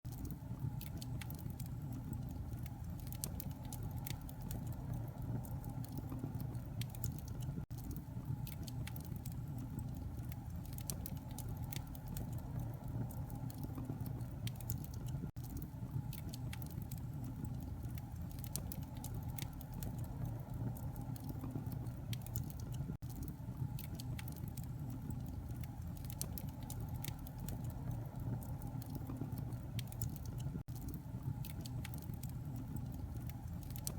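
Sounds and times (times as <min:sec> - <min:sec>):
fire low rumble: 0:00.1 - 0:33.9
wood fire crackling and popping: 0:00.1 - 0:33.9.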